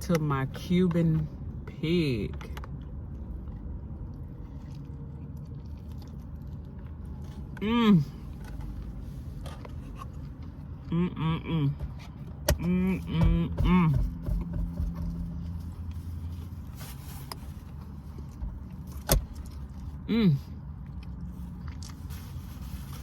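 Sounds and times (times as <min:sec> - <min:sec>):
low hum inside car: 0:00.0 - 0:23.0
woman humming mmm while eating: 0:10.9 - 0:11.8.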